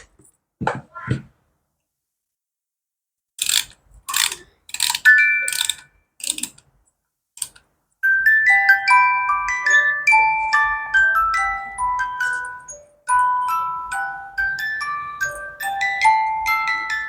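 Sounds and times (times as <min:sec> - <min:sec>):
metallic scrapes and clicks: 0:03.4 - 0:06.7, 0:07.4 - 0:07.7
plinking glockenspiel-like music: 0:05.0 - 0:05.8, 0:08.0 - 0:17.0.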